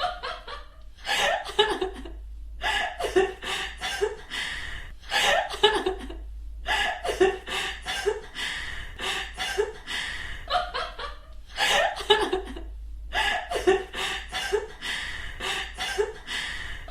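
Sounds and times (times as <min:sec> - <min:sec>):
people chuckling and laughing: 0:00.0 - 0:02.2, 0:05.1 - 0:06.2, 0:09.0 - 0:12.7
steady low hum: 0:00.0 - 0:16.9.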